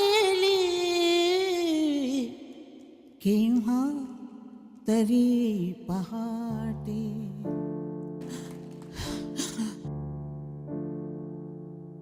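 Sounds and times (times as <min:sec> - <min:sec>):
slow piano chords: 0:03.2 - 0:12.0.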